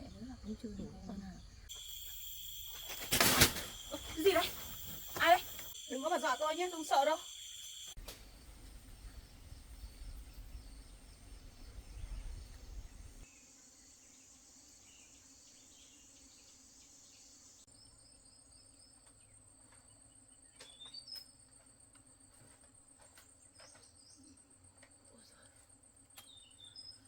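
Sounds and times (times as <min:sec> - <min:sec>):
crickets and insects trilling: 0:00.0 - 0:17.7.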